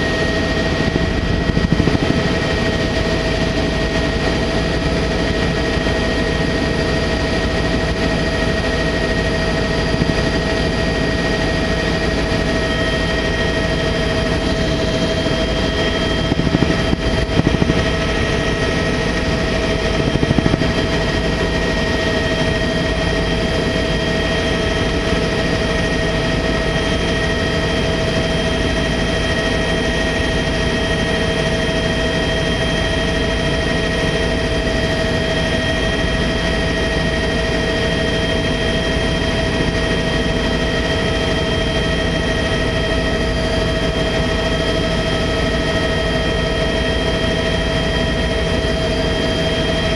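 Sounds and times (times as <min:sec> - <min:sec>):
high whine: 0:00.0 - 0:05.4, 0:07.6 - 0:26.4
helicopter cabin drone: 0:00.0 - 0:49.9.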